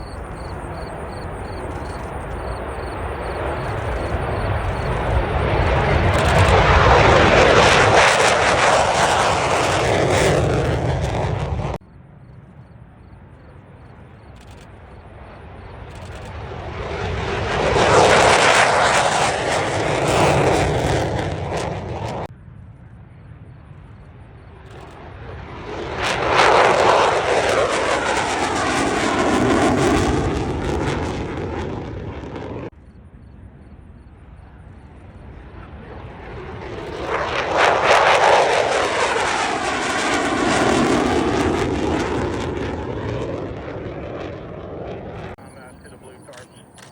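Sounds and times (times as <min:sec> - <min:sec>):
aircraft flying past: 0:00.0 - 0:46.9.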